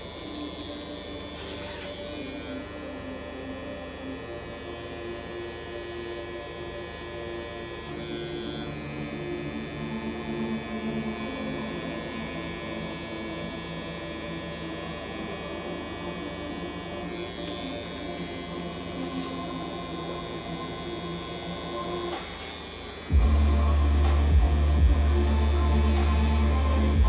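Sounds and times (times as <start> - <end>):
tattoo machine humming: 0.0 - 27.0
loud music with deep bass: 9.9 - 27.0.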